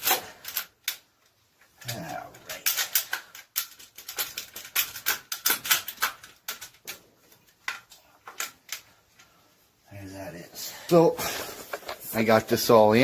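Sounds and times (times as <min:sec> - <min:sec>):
hand tools clicking on metal: 0:00.0 - 0:08.9.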